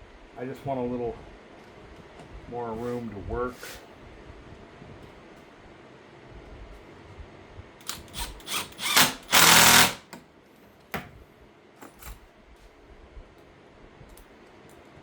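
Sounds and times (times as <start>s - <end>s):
power drill bursts: 7.9s - 10.1s.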